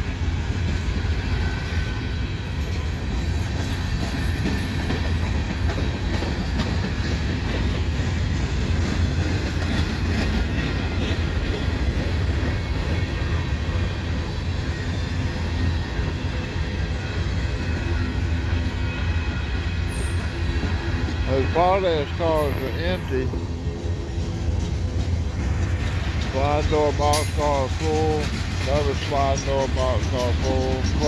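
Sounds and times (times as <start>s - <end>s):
freight train rolling past: 0.0s - 31.0s
clacks and rattles: 3.6s - 12.6s, 24.2s - 31.0s.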